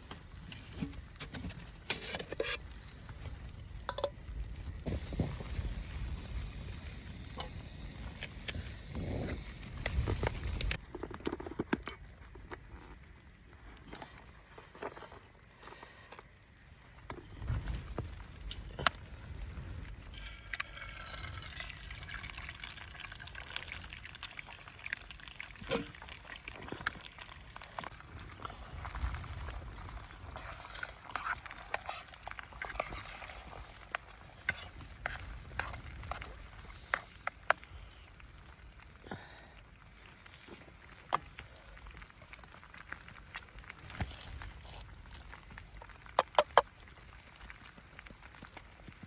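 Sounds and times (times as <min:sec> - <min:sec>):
liquid pouring and trickling: 0:20.1 - 0:34.5.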